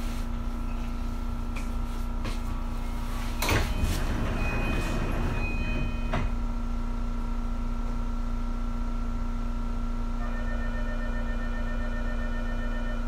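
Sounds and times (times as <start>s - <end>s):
electric train humming: 0.0s - 7.0s.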